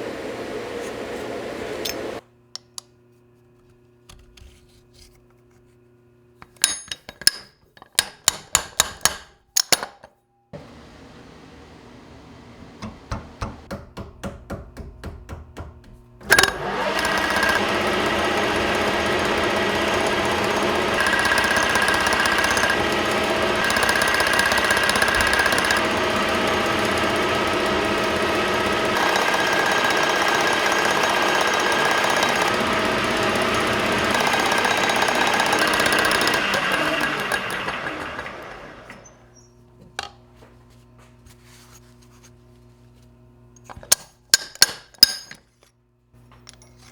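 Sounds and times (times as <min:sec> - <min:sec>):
metal lathe running: 0:00.0 - 0:02.2, 0:16.2 - 0:39.3.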